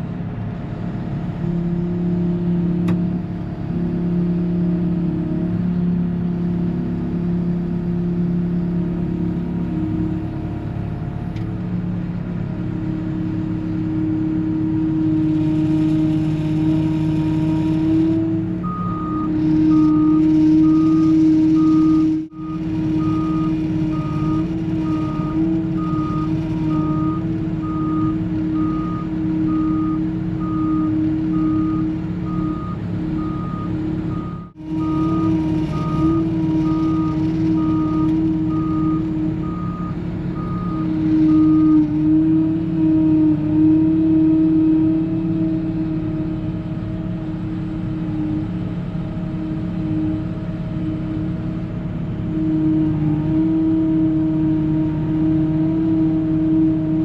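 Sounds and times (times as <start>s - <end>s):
vehicle engine running: 0.0s - 57.0s
reversing alarm beeping: 18.6s - 41.8s.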